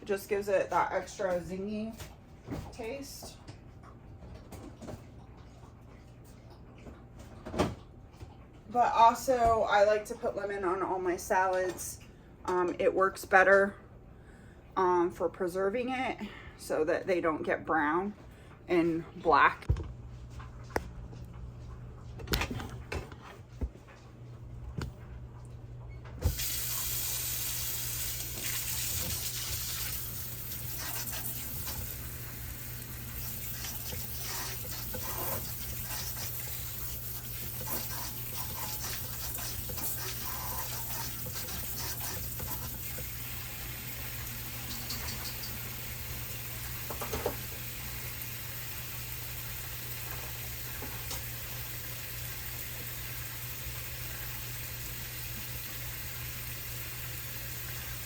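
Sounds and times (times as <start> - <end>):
dishes and produce clattering: 44.6 - 45.6.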